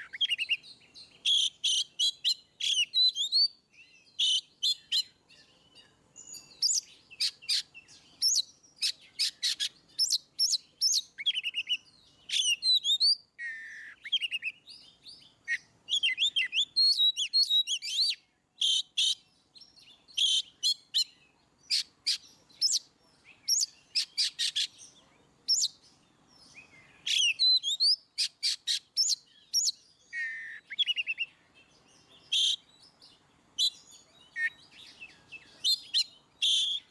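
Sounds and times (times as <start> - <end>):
bird singing whistles and trills: 0.0 - 36.9.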